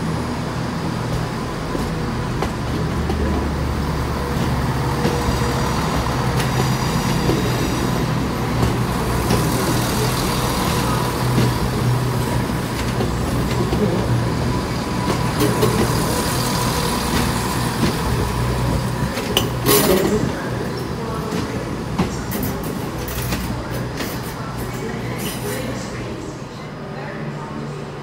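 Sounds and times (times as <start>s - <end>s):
train droning hum: 0.0s - 28.0s.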